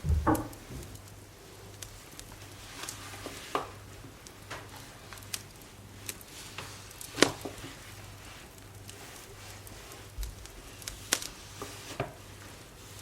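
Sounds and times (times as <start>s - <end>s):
low thud: 0.0s - 0.9s.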